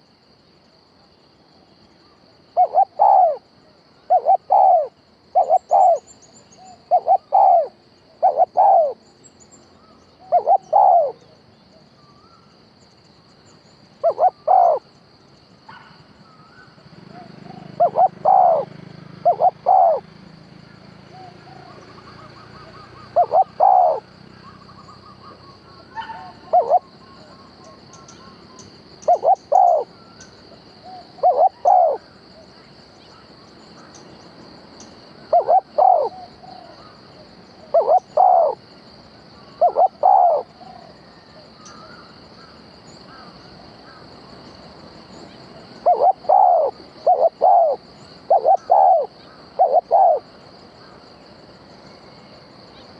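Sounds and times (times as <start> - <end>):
faint high-pitched whine: 0.0 - 52.9
dove cooing: 2.6 - 9.1, 9.8 - 11.4, 14.0 - 14.9, 15.7 - 34.0, 35.1 - 38.7, 39.3 - 44.2, 45.2 - 51.0.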